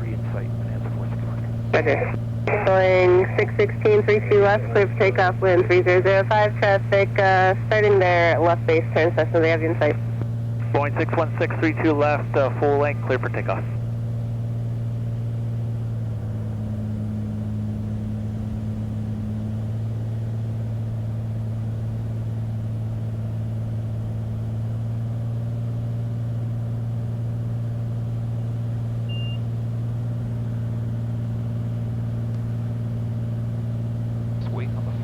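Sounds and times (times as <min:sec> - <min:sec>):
aircraft engine and propeller droning: 0:00.0 - 0:35.0
short high beep: 0:29.1 - 0:29.4.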